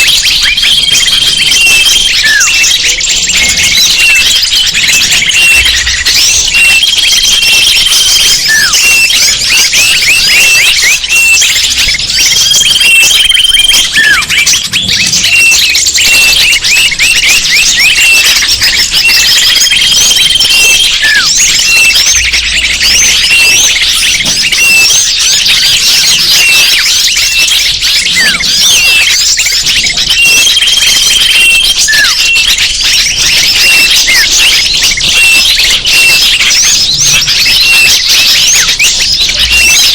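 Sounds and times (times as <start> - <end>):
falling whistle: 0.0 - 39.9
small birds chirping and trilling: 0.0 - 39.9
short held whistle: 21.0 - 22.0, 31.3 - 32.4.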